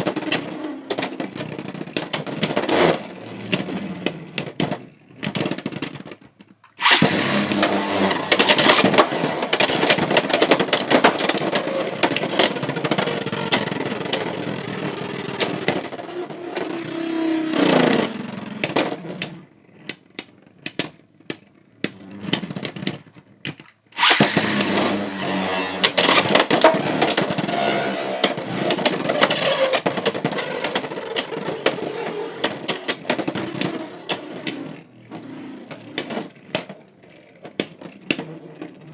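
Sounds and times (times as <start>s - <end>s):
tops scraping plastic rail: 0.0s - 17.0s, 17.6s - 38.9s
spinning top winding down whine: 6.8s - 10.4s, 24.0s - 32.8s
loose clicks: 23.5s - 27.5s
spinning tops clashing: 24.0s - 27.7s.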